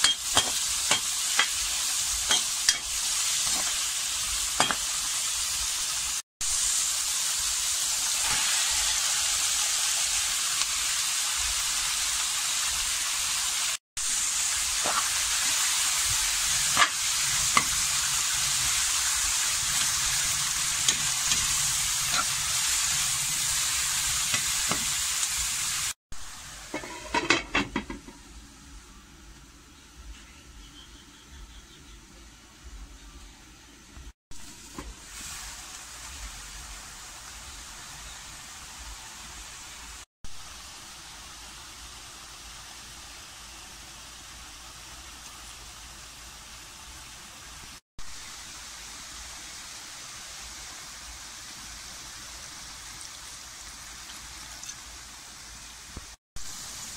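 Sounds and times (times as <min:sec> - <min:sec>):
food sizzling in oil: 0:00.0 - 0:28.2, 0:34.3 - 0:56.9.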